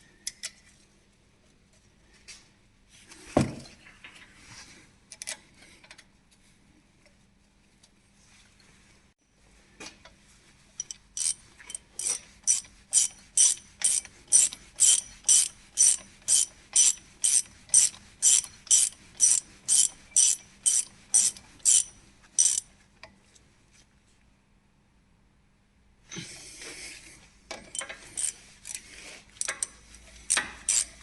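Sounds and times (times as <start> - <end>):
ratchet wrench clicking: 10.8 - 22.6, 27.6 - 28.8, 29.4 - 31.0.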